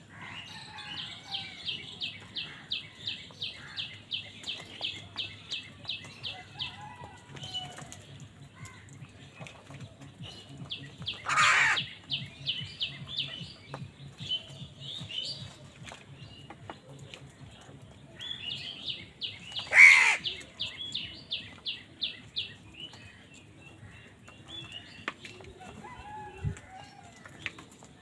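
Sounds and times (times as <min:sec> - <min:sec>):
harsh bird caws: 0:11.2 - 0:11.9, 0:19.7 - 0:20.2.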